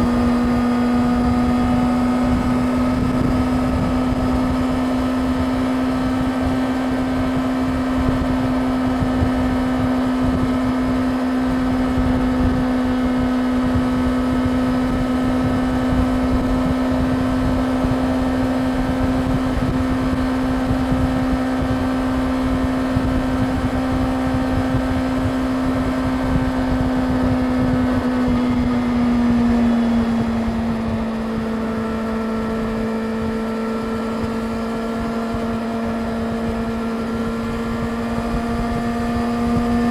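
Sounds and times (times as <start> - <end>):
motorcycle engine cruising: 0.0 - 39.9
wind noise: 0.0 - 39.9.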